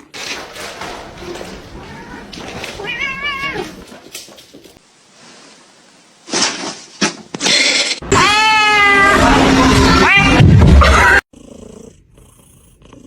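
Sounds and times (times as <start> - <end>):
cat meowing: 1.8 - 3.8.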